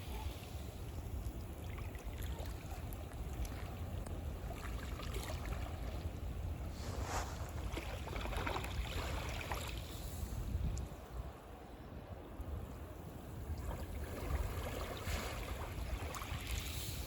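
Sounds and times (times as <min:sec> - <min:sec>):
sea waves washing ashore: 0:00.0 - 0:17.0
wind buffeting microphone: 0:02.6 - 0:17.0.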